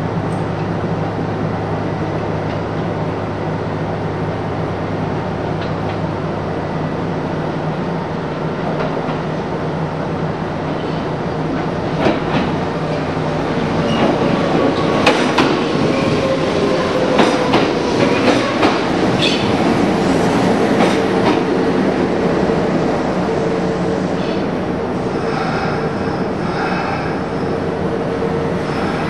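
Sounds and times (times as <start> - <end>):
train rumble: 0.0 - 29.0.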